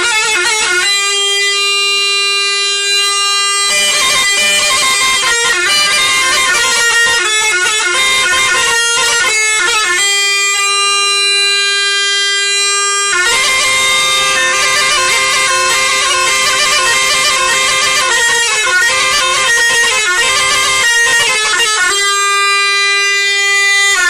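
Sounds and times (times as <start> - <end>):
bagpipe music: 0.0 - 24.0.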